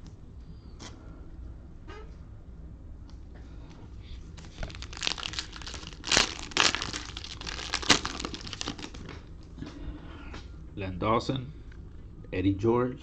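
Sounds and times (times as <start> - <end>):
cellophane wrapper crinkling and tearing: 4.4 - 9.1.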